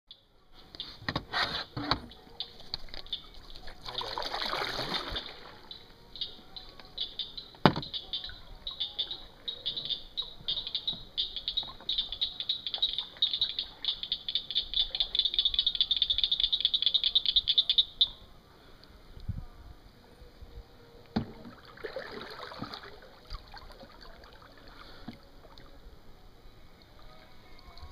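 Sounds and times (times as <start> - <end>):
frogs calling in clicking trills: 2.1 - 4.2, 5.0 - 18.2.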